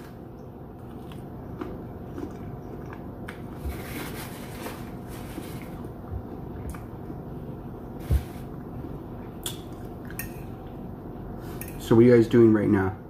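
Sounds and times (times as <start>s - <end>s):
chewing and biting: 0.7s - 3.6s.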